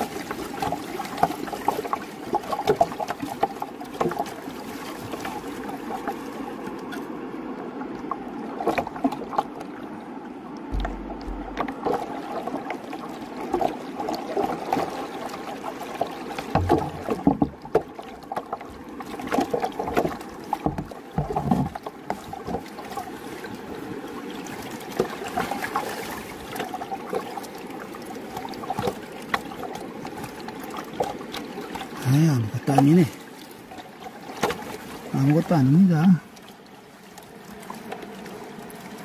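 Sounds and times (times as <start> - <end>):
river water rushing and splashing: 0.0 - 39.0
river stones knocking: 10.7 - 12.1, 16.4 - 17.9, 20.0 - 21.8.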